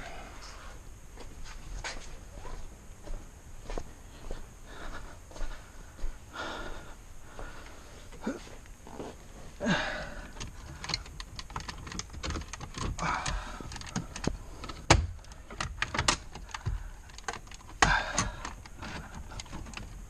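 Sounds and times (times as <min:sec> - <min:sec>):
plastic trim clicks and knocks: 0:10.4 - 0:20.0.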